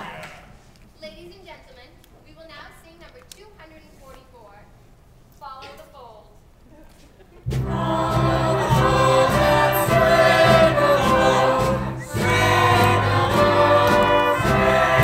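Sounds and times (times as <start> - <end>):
chorus singing with accompaniment: 7.5 - 15.0.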